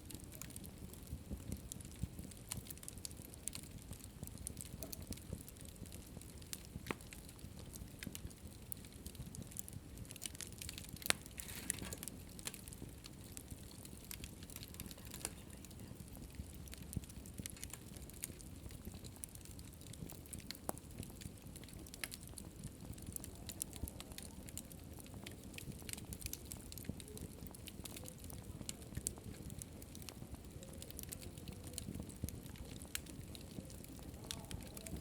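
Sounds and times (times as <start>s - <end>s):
wood fire crackling: 0.0s - 35.0s
sharp pops and snaps: 9.0s - 15.4s.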